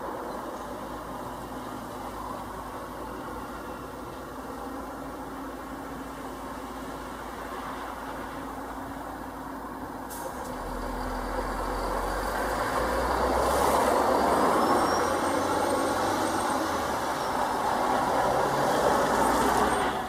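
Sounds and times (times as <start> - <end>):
train approaching on track: 0.0 - 20.0.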